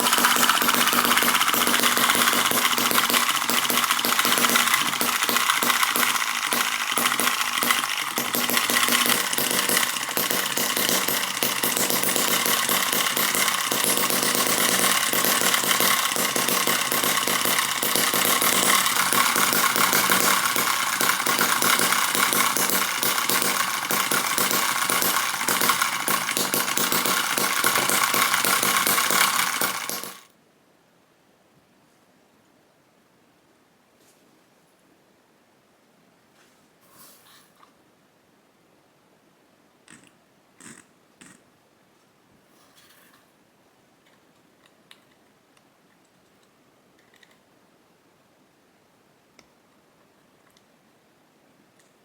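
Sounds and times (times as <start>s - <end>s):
miniature engine rattling: 0.0s - 30.3s.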